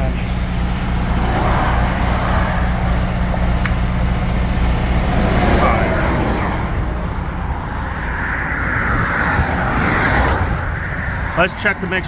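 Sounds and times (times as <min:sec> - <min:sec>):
diesel truck engine idling: 0:00.0 - 0:08.7
wind noise: 0:06.8 - 0:11.5.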